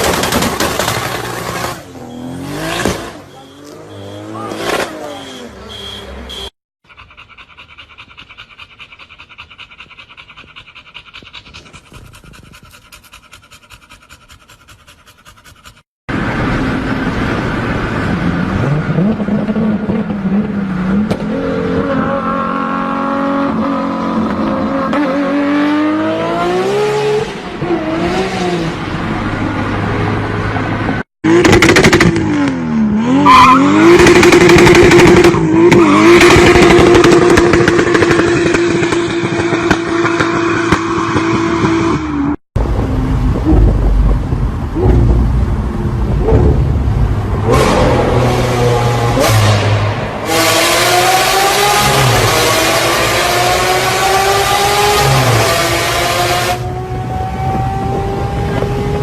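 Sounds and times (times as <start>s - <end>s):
car engines revving and accelerating: 0.0s - 6.3s, 16.1s - 59.0s
engine blipping up and down: 30.6s - 59.0s.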